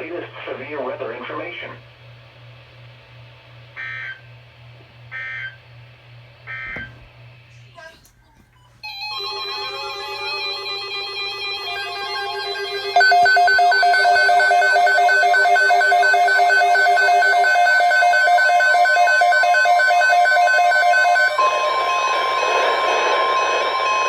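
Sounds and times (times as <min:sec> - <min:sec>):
radio static: 0:00.0 - 0:01.8
two-tone alarm beeping: 0:03.8 - 0:04.2, 0:05.2 - 0:05.6, 0:06.5 - 0:07.1, 0:08.8 - 0:24.0
keyboard music: 0:08.8 - 0:24.0
steady alert tone: 0:08.9 - 0:24.0.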